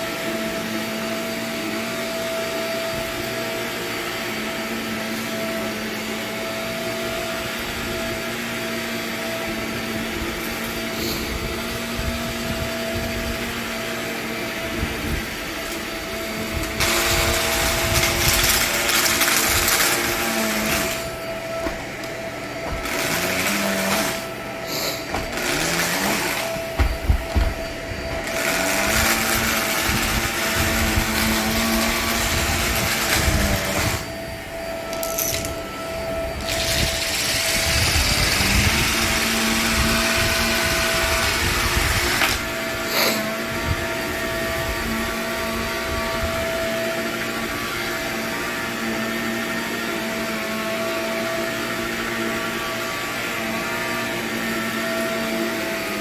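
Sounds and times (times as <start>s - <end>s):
vacuum cleaner motor hum: 0.0s - 56.0s
hiss of grit sucked up: 24.7s - 25.1s.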